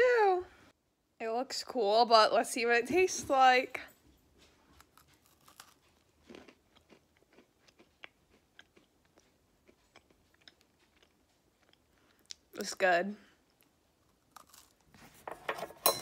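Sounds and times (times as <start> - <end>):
chewing crisp pastry: 4.3 - 15.1.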